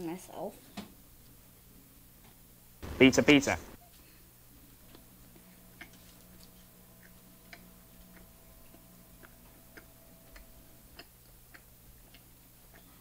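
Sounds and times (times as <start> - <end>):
low room hum: 0.0 - 13.0
wet chewing and lip-smacking: 7.0 - 13.0.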